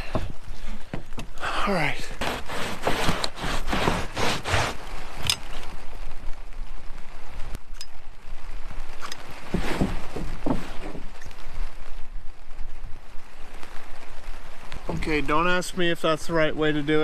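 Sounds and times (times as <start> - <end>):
scraping and shuffling on roof: 0.0 - 5.6, 9.4 - 11.2
rain hiss: 0.0 - 17.0.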